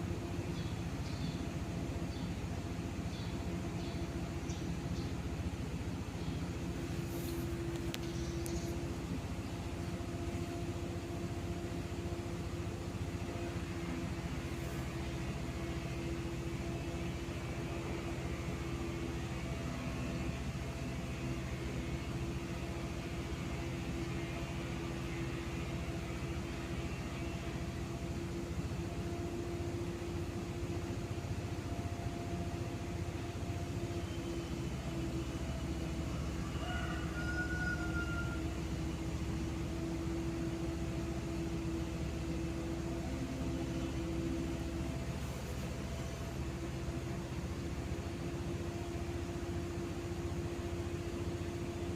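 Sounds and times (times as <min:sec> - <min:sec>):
rush of air from fan blades: 0:00.0 - 0:26.9
fan motor hum: 0:00.0 - 0:51.9.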